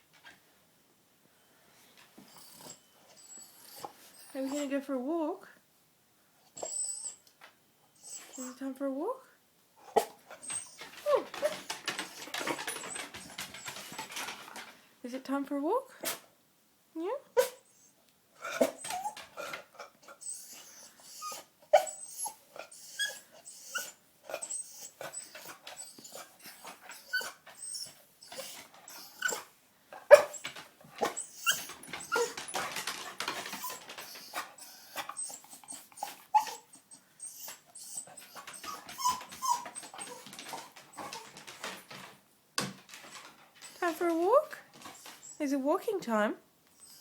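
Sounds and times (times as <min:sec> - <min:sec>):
dog whimpering: 0:02.3 - 0:04.6, 0:06.6 - 0:07.3, 0:08.0 - 0:08.6, 0:10.0 - 0:14.3, 0:17.4 - 0:29.5, 0:30.1 - 0:41.8, 0:44.8 - 0:45.4, 0:46.8 - 0:47.0.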